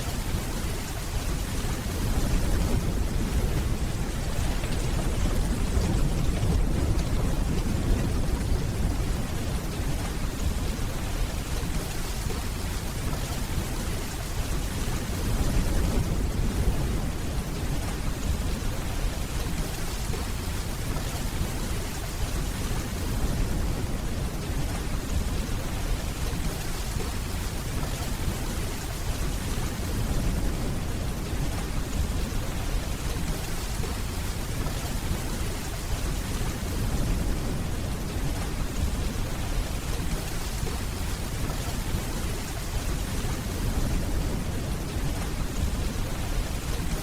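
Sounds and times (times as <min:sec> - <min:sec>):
steady rainfall: 0:00.0 - 0:47.0
distant thunder rumbling: 0:00.1 - 0:11.9.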